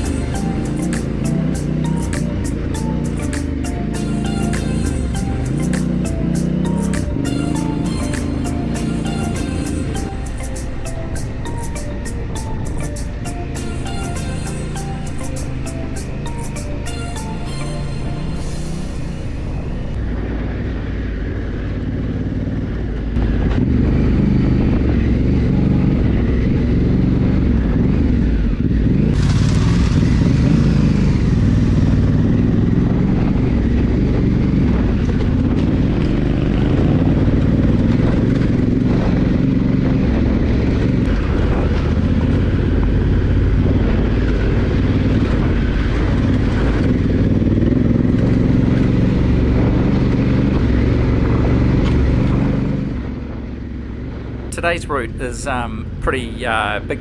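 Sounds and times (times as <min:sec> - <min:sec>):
motorcycle engine running: 0:00.0 - 0:11.6, 0:18.6 - 0:54.5
wind and road noise: 0:18.4 - 0:54.6.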